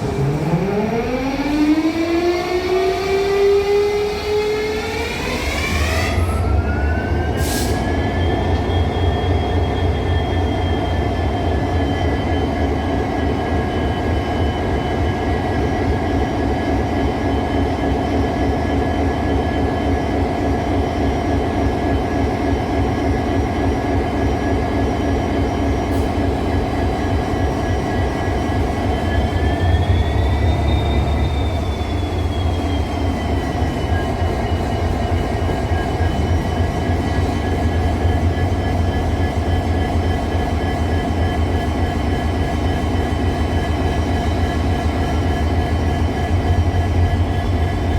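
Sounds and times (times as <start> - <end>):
engine whine: 0.0 - 12.2, 25.9 - 47.9.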